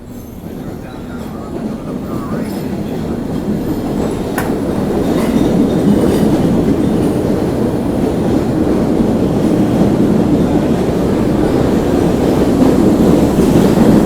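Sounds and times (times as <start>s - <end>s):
train rumbling on rails: 0.0s - 14.0s
train wheel clicks: 1.1s - 7.5s.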